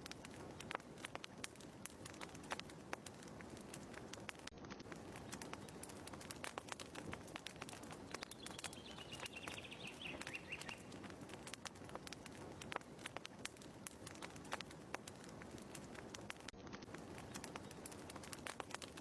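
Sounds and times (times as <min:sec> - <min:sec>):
wood fire crackling and popping: 0:00.0 - 0:19.0
bird chirping: 0:08.1 - 0:10.9.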